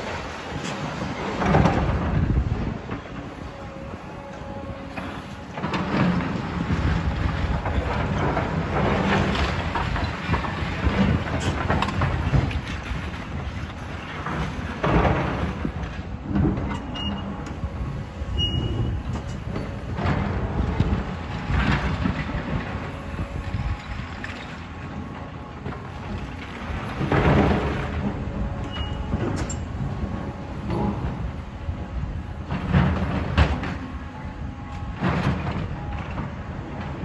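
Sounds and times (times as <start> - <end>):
demolition machinery diesel drone: 0.0 - 37.0
building rubble crashing: 5.0 - 16.7, 19.8 - 28.4.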